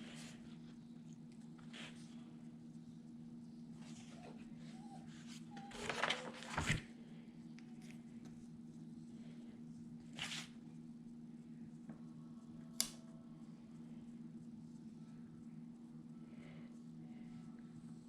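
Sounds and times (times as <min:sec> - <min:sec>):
steady low hum: 0:00.0 - 0:18.0
paper rustling: 0:05.6 - 0:06.9.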